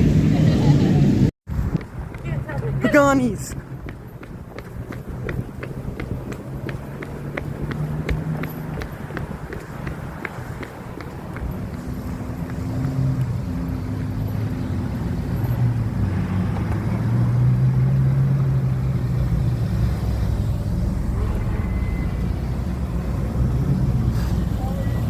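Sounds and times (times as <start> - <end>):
car engine low drone: 3.6 - 25.0.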